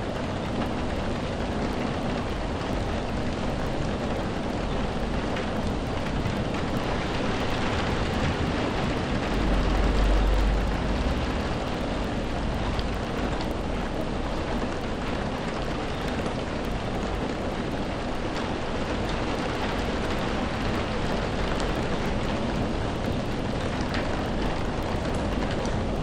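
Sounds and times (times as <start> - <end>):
steady rainfall: 0.0 - 26.0.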